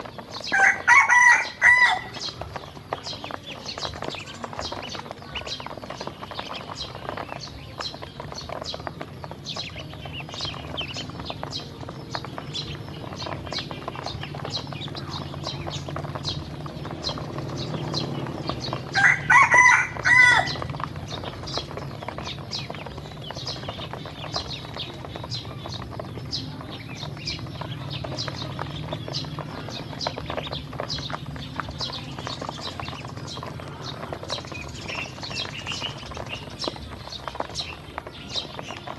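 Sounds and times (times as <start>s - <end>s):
ducklings peeping: 0.0s - 38.9s
rooster crowing: 0.5s - 2.2s, 18.9s - 20.6s.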